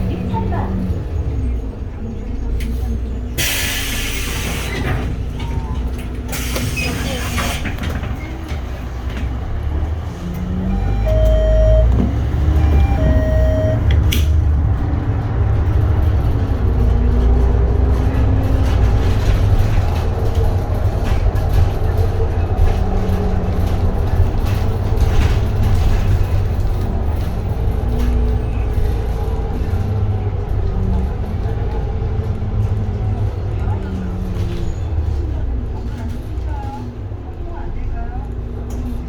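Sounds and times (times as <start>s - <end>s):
bus engine rumbling: 0.0s - 39.0s
short electronic beeps: 10.7s - 13.9s.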